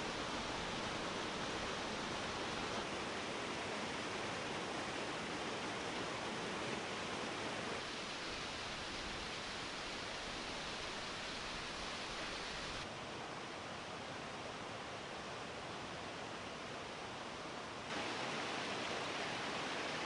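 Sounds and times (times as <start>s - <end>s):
waterfalls rushing: 0.0s - 12.9s, 17.9s - 20.0s.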